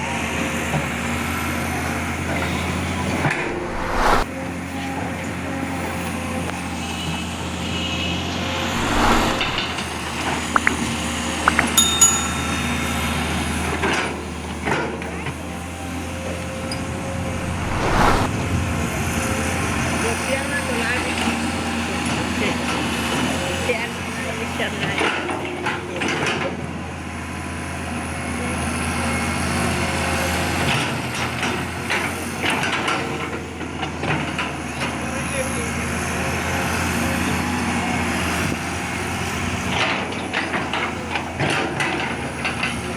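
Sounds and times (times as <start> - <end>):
short metallic clinks: 11.6 - 13.3.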